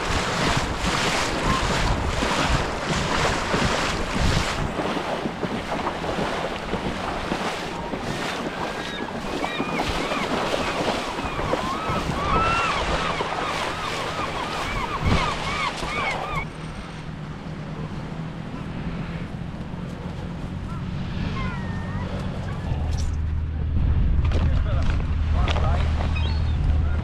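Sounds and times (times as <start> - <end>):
wind buffeting microphone: 0.0 - 16.5
surf washing on beach: 0.0 - 19.2.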